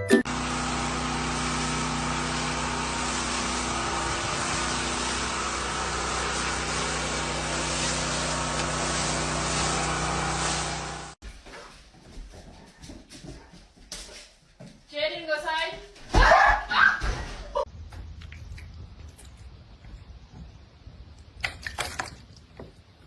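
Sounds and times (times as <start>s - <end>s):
motor droning: 0.3s - 11.2s.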